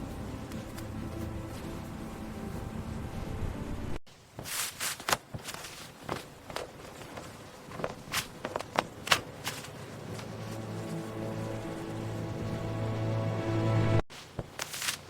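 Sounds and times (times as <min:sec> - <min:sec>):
music: 0:00.0 - 0:04.0, 0:10.0 - 0:14.0.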